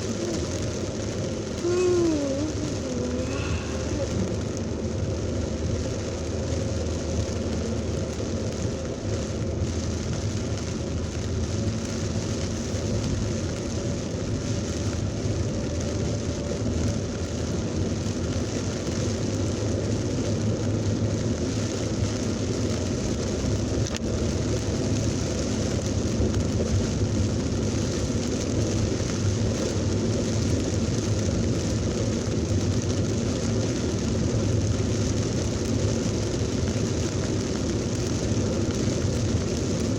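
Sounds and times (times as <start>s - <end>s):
vehicle traffic: 0.0s - 5.3s
heavy rain pouring: 0.0s - 39.9s.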